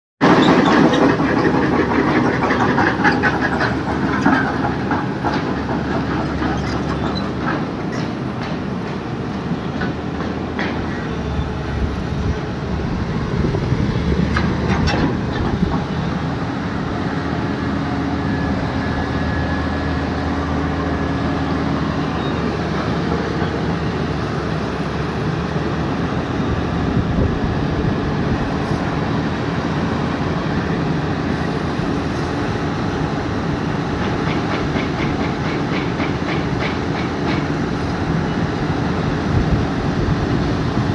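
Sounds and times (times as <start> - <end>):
excavator diesel engine running: 0.2 - 40.9
metallic clanking and knocking: 14.3 - 16.0.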